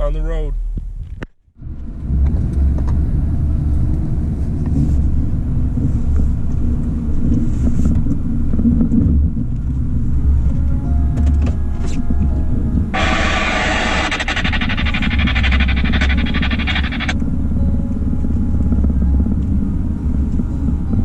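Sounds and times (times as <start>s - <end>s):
plow vehicle engine rumbling: 12.2s - 21.0s.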